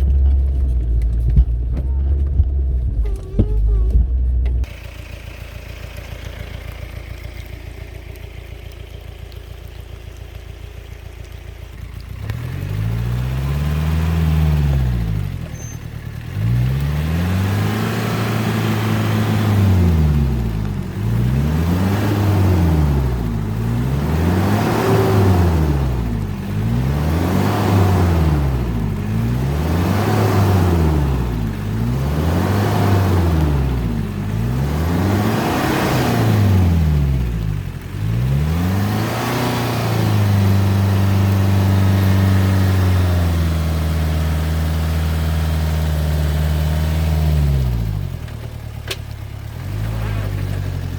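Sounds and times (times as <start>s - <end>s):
diesel engine revving: 0.0s - 50.9s.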